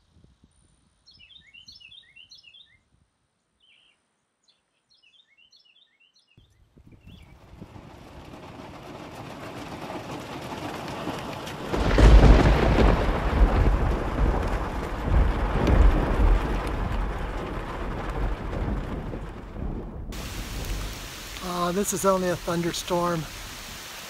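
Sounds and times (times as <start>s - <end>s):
thunder rumbling: 7.0s - 24.0s
steady rain falling: 7.5s - 24.0s.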